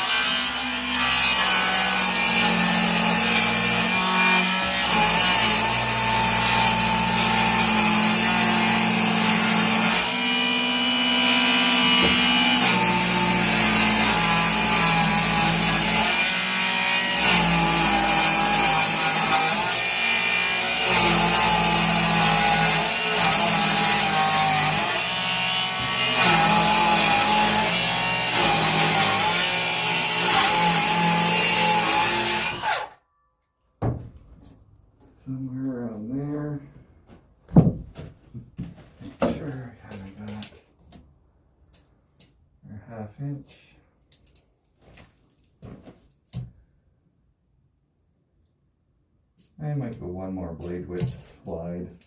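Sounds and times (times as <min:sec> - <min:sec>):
power saw cutting wood: 0:00.0 - 0:33.0.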